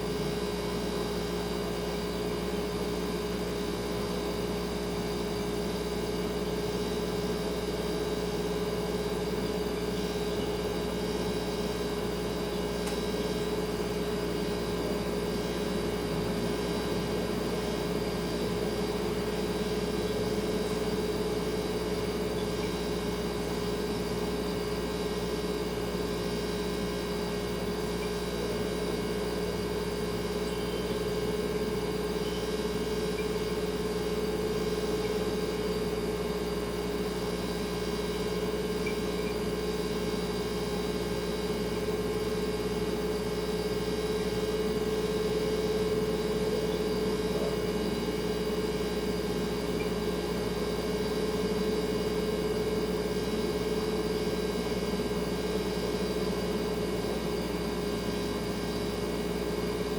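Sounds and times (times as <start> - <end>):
refrigerator humming: 0.0 - 59.9.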